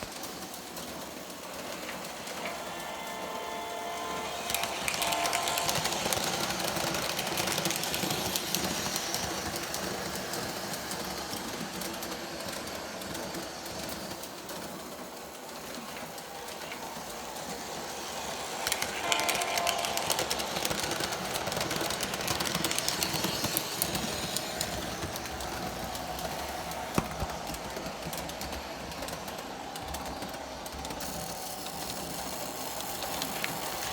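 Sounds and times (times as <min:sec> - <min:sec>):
model train wheels clattering on rails: 0:00.0 - 0:33.9
train horn: 0:02.4 - 0:07.4, 0:18.6 - 0:22.6.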